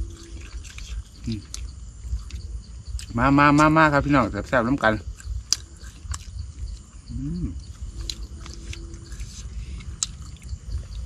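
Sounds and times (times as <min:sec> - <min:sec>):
person chewing: 0:00.0 - 0:03.7, 0:05.0 - 0:11.0
held low tone: 0:06.3 - 0:11.0.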